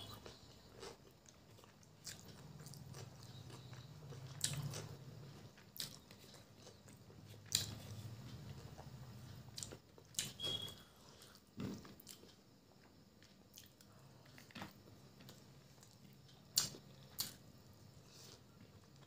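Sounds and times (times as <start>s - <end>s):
wet chewing: 0.0s - 4.9s.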